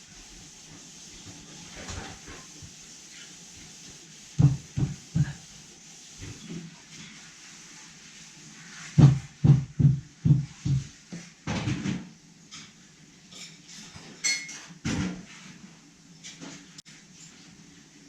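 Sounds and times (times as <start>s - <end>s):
dull knocks and thumps: 4.4s - 5.4s, 9.0s - 10.9s.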